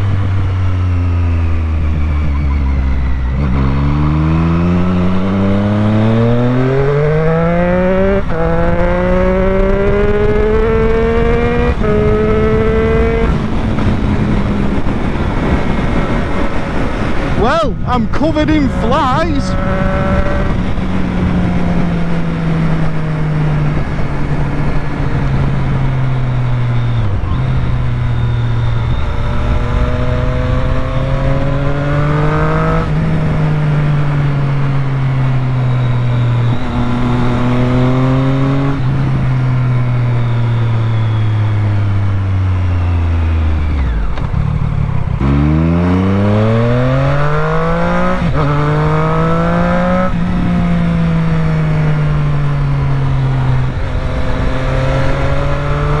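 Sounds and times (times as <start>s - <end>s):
motorcycle engine revving: 0.0s - 17.4s, 19.5s - 56.0s.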